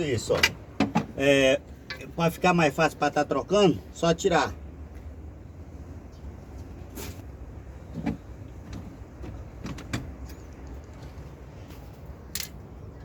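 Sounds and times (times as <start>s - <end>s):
metal engine parts clicking: 1.8s - 2.4s, 12.3s - 12.7s.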